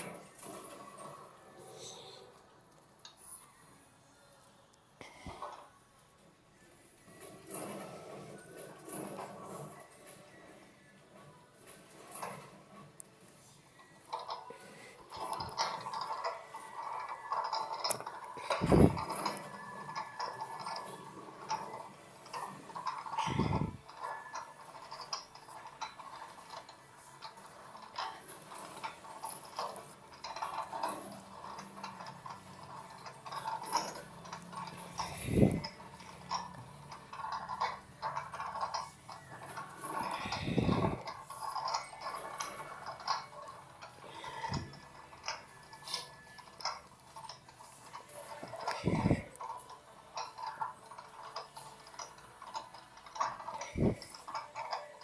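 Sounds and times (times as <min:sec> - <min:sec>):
washing machine motor hum: 0:14.1 - 0:55.0.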